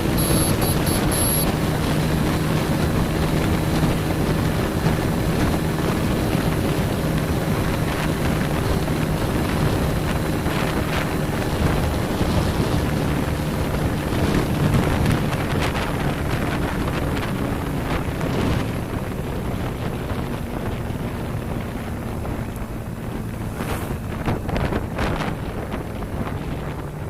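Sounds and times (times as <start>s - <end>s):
high-pitched beeps: 0.0s - 1.5s
motorcycle engine running: 0.0s - 27.0s
wind rush on microphone: 0.0s - 27.0s.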